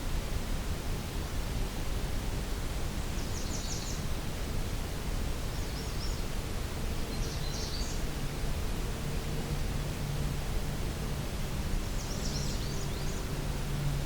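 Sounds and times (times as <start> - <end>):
background hiss: 0.0 - 14.0
songbird phrase: 7.1 - 8.0, 12.0 - 13.3.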